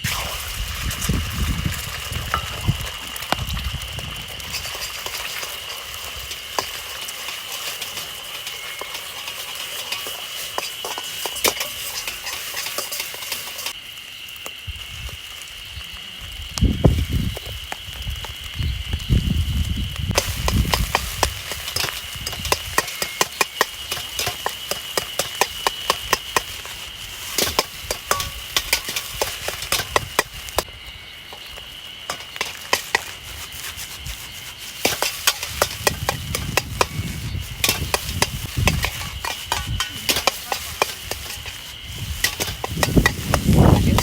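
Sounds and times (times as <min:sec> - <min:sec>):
metal utensil scraping a wok: 0:04.2 - 0:13.8, 0:20.2 - 0:30.7, 0:31.3 - 0:44.0.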